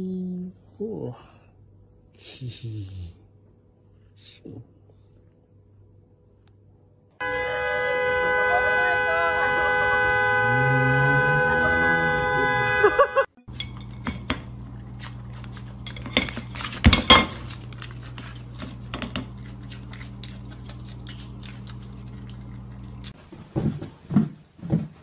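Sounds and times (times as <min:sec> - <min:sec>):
electrical hum: 0:00.0 - 0:23.8
loud held tone: 0:07.2 - 0:13.3.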